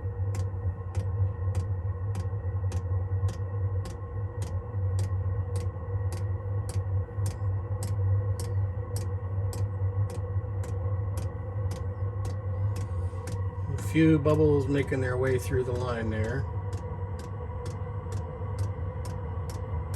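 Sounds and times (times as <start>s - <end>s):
heater low drone: 0.0s - 19.9s
fuel pump clicking: 0.4s - 13.5s.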